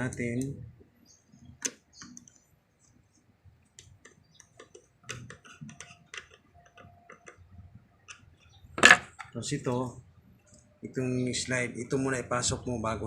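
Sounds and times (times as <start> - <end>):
plastic clicks: 3.8 - 9.4.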